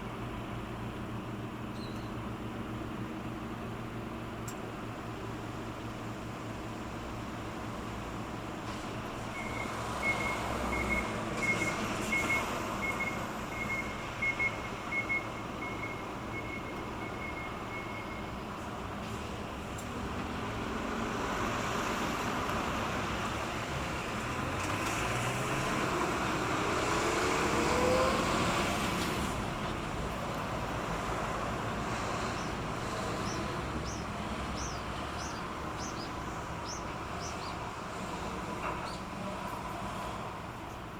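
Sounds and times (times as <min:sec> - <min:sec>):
traffic rumble: 0:00.0 - 0:40.9
small bird chirping: 0:01.7 - 0:02.2, 0:33.2 - 0:37.6.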